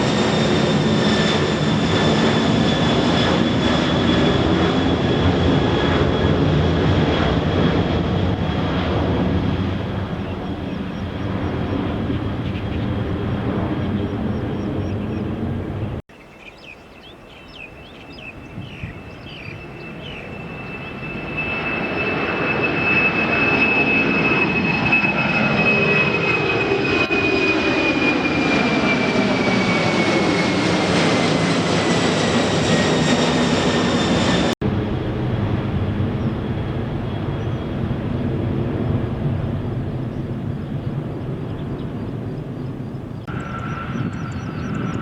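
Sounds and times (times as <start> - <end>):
jet engines roaring at takeoff: 0.0 - 16.1, 17.5 - 45.0
high turbine whine: 17.6 - 45.0.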